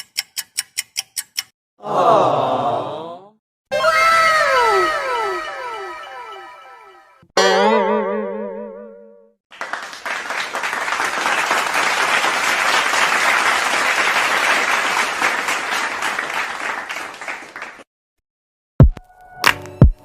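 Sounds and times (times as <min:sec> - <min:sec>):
crowd clapping: 0:09.5 - 0:17.9.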